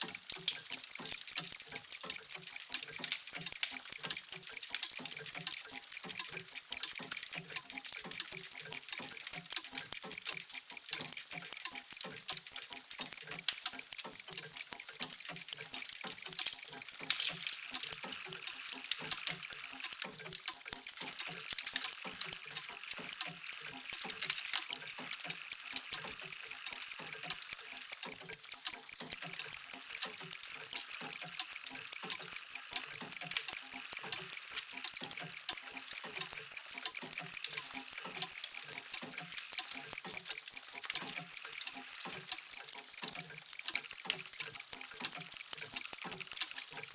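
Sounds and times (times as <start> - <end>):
clocks ticking: 0.0 - 46.9
low clock tocks: 0.0 - 46.9.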